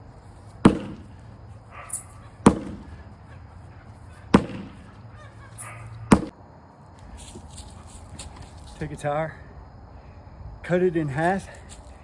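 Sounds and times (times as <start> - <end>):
sledgehammer striking a tire: 0.6 - 1.3, 1.9 - 3.2, 4.3 - 5.0, 6.1 - 6.4.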